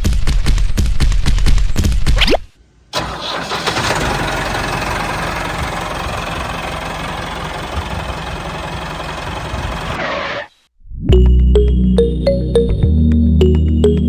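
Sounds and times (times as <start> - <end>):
small tractor motor rattling: 3.0 - 10.0.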